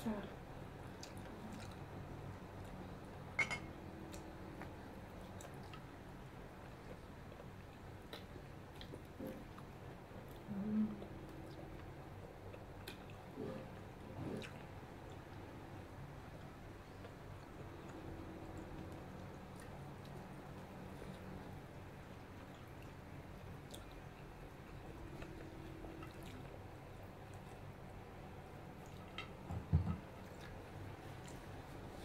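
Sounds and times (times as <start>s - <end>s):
faint chewing and biting: 0.8s - 3.1s, 4.1s - 32.0s.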